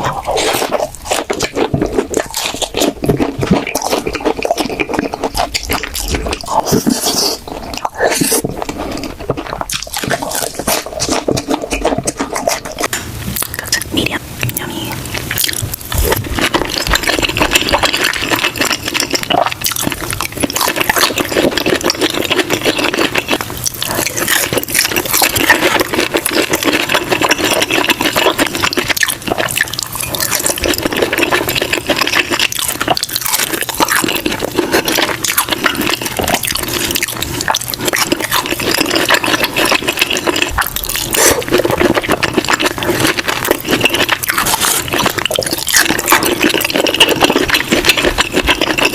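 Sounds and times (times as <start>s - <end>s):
mouth clicks and smacks: 0.0s - 48.9s
wet chewing: 0.0s - 48.9s.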